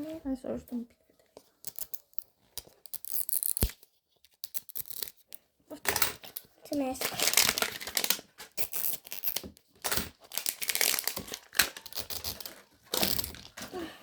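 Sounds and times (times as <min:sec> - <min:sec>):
plastic packaging crinkling and tearing: 0:01.6 - 0:05.3, 0:06.7 - 0:13.8.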